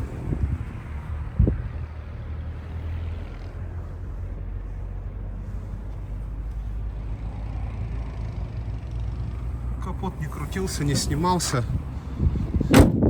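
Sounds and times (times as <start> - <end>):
car engine idling: 0.0 - 13.0
thump: 12.7 - 13.0.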